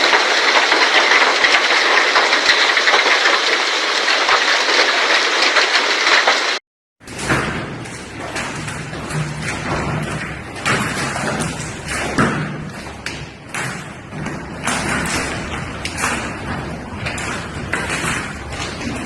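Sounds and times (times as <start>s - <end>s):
hailstones pelting a hard surface: 0.0s - 6.6s.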